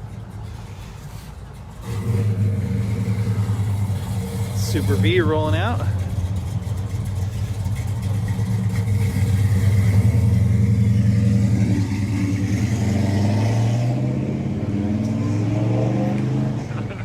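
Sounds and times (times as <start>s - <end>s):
car engine running: 0.0s - 13.5s.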